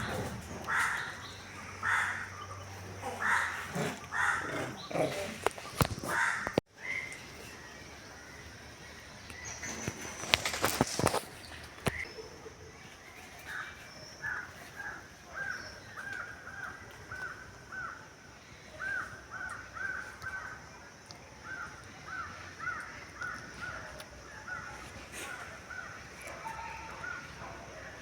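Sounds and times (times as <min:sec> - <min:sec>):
bird calling: 0:00.0 - 0:18.0.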